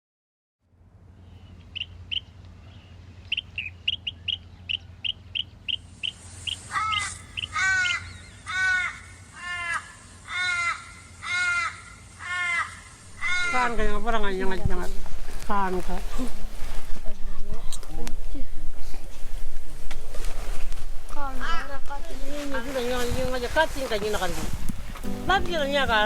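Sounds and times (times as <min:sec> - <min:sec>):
crow cawing: 0:06.5 - 0:13.9.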